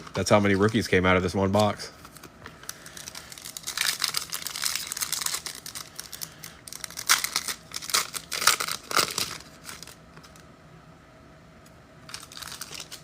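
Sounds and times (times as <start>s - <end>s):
wrapper tearing and crinkling: 1.6s - 10.4s, 12.1s - 13.0s.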